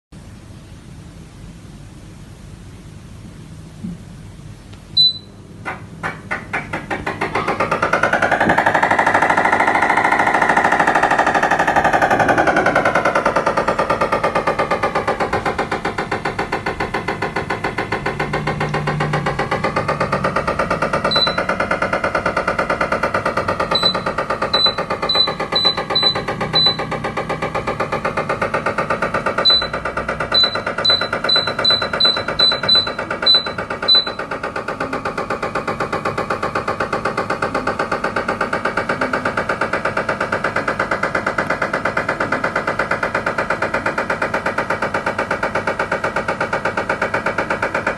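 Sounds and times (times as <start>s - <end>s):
air conditioner rattling: 0.2s - 47.9s
short electronic beeps: 5.0s - 5.3s, 21.1s - 21.4s, 23.8s - 26.8s, 29.5s - 29.8s, 30.4s - 34.2s.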